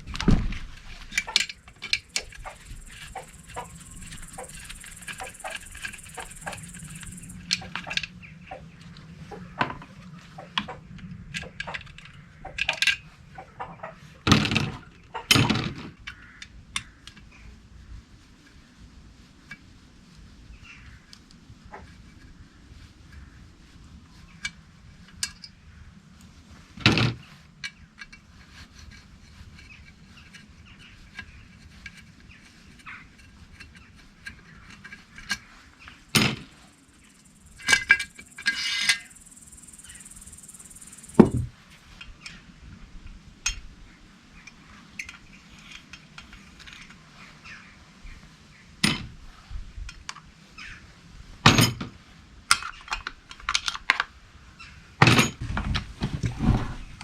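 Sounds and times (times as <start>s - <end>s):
metal tools clinking: 1.0s - 8.0s, 36.1s - 39.2s.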